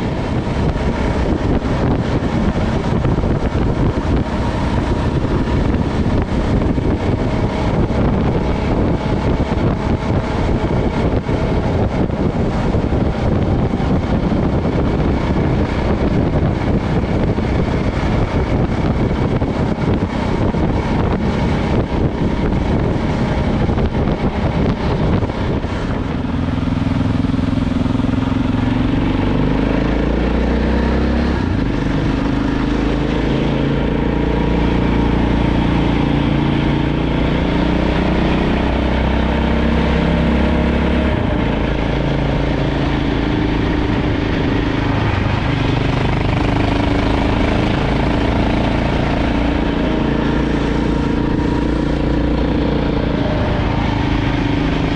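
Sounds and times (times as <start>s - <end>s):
wind on microphone: 0.0s - 54.9s
motorbike engine running: 40.6s - 54.9s.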